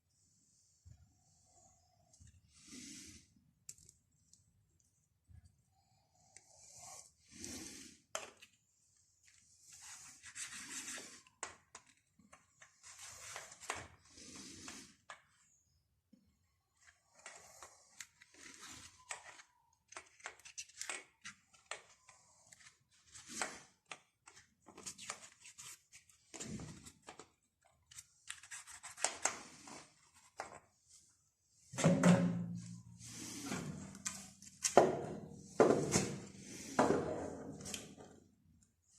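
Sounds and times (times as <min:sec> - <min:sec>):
scraping and rubbing strokes: 0:09.5 - 0:11.4, 0:32.7 - 0:34.6.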